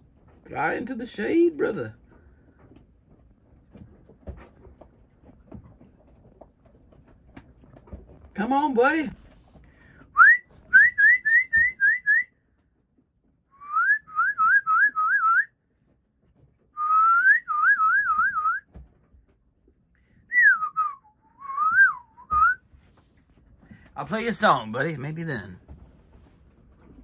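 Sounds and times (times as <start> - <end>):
person whistling: 10.2 - 12.3, 13.6 - 15.5, 16.8 - 18.6, 20.3 - 22.6.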